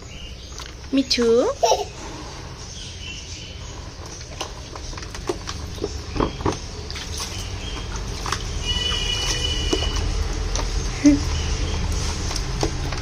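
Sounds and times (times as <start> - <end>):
small water splashes: 4.0 - 13.0.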